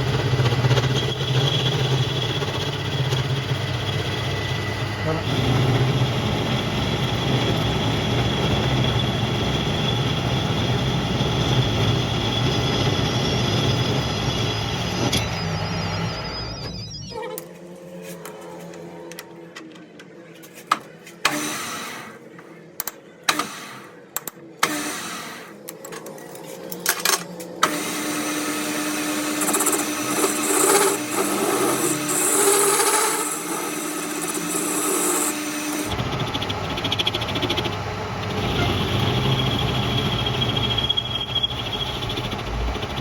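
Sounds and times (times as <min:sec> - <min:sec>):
power tool running: 0:21.2 - 0:22.4, 0:23.3 - 0:24.0, 0:24.6 - 0:25.7, 0:27.6 - 0:43.0.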